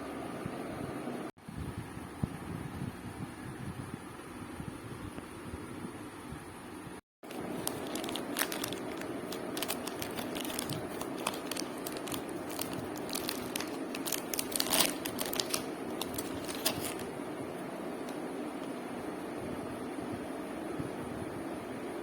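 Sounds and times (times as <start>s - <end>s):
steady background noise: 6.6s - 22.0s
plastic packaging crinkling: 7.2s - 17.2s.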